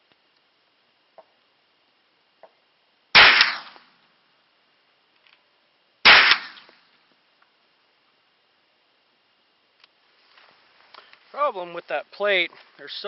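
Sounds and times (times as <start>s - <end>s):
rifle shots with echo: 3.2s - 3.8s, 6.0s - 6.7s.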